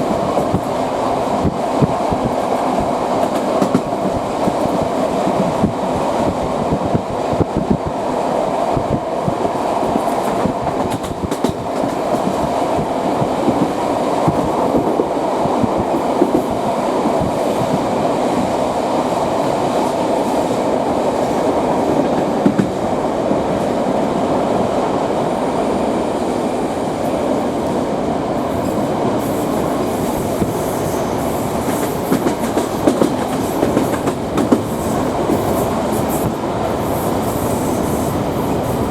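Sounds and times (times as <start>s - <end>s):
rumble of moving train: 0.0s - 38.9s
train wheels clattering over rail joints: 1.4s - 7.8s, 8.8s - 18.4s, 21.2s - 22.9s, 28.5s - 38.9s.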